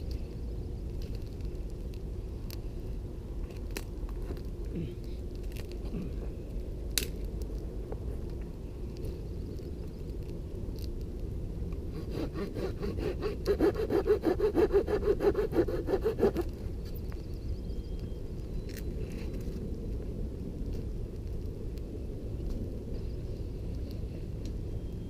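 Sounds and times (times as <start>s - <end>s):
hand saw cutting wood: 11.9s - 16.5s.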